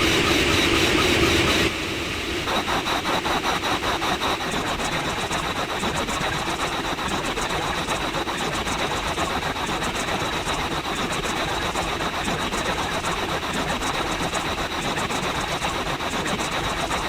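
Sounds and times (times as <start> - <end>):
engine running with fast pulse: 0.0 - 6.6.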